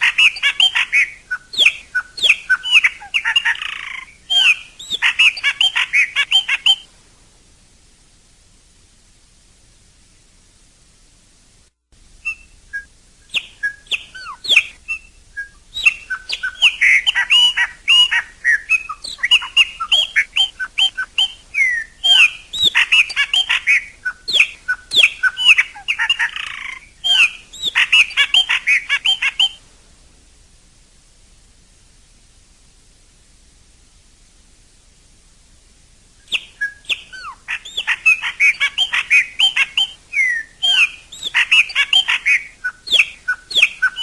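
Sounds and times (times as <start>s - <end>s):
bird singing whistles and chirps: 0.0s - 6.9s, 12.2s - 29.6s, 36.2s - 44.0s.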